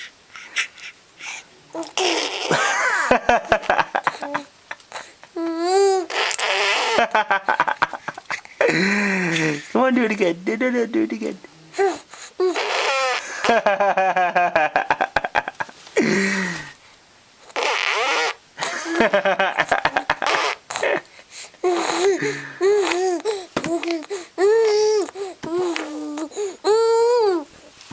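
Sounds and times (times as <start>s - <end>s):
baby sputtering: 0.0s - 2.6s, 5.0s - 7.0s, 11.7s - 13.3s, 17.5s - 18.4s, 21.6s - 26.5s
baby crying: 0.4s - 2.6s, 4.2s - 7.0s, 11.8s - 13.3s, 21.6s - 27.5s.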